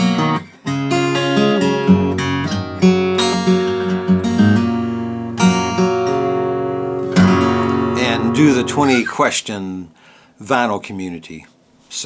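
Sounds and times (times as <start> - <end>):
acoustic guitar strumming: 0.0 - 9.2.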